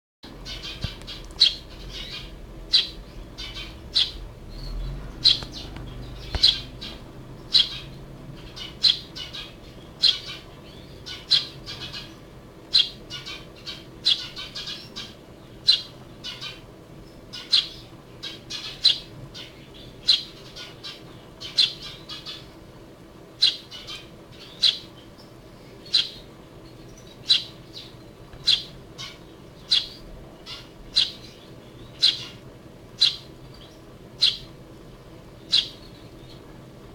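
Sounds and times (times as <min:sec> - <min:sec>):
sparrow chirping: 0:00.3 - 0:22.6, 0:23.4 - 0:32.4, 0:33.0 - 0:34.5, 0:35.4 - 0:36.4.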